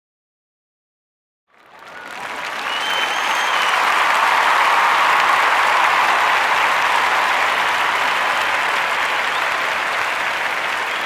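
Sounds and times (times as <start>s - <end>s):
large audience applauding: 1.5s - 11.0s
whistle: 2.6s - 3.9s.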